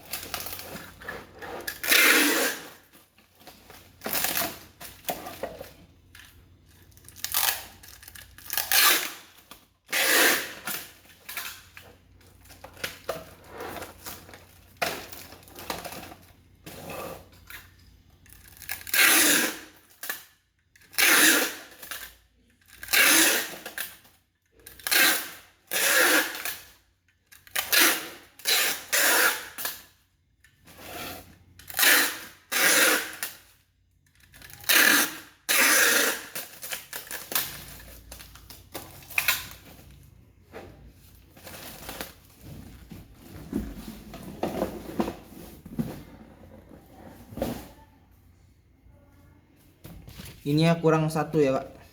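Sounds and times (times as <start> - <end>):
packaged items rustling and clattering: 0.0 - 9.8, 10.5 - 18.9, 36.3 - 48.0.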